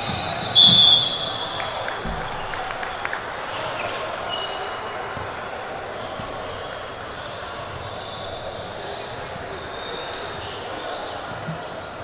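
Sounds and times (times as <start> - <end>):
shoe squeaks: 0.0 - 2.3, 6.2 - 12.0
basketball bouncing on court: 0.0 - 4.0
crowd and voices: 0.0 - 12.0.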